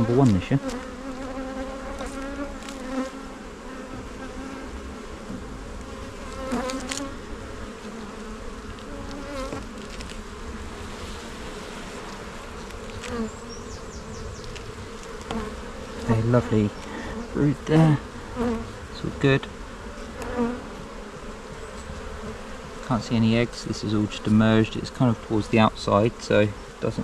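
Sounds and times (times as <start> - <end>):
bee flying close past: 0.0 - 27.0
bees buzzing: 0.0 - 27.0.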